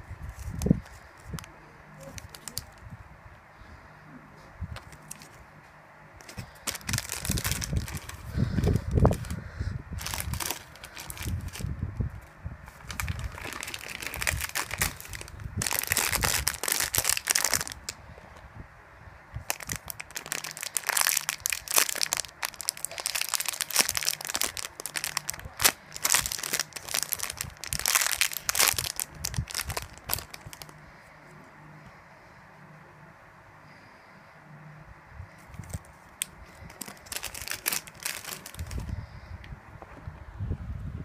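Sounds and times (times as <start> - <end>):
packaging crinkling: 0.3 - 2.8, 4.8 - 5.4, 6.2 - 9.4, 10.0 - 18.0, 19.4 - 30.8, 35.5 - 38.9.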